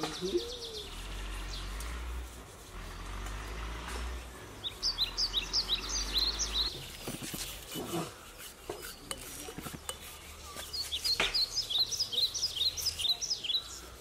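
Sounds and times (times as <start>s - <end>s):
small bird chirping: 0.0s - 2.0s, 4.3s - 6.8s, 9.8s - 14.0s.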